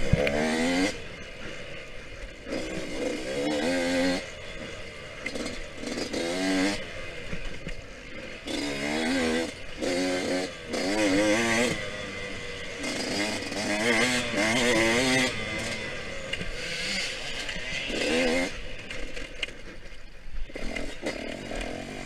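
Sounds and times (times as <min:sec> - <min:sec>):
dirt bike engine revving: 0:00.0 - 0:19.8, 0:20.4 - 0:22.0.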